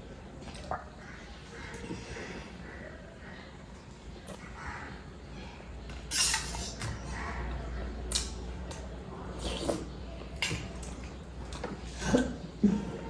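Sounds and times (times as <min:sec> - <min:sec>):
cutlery clinking on a plate: 0:06.1 - 0:07.0.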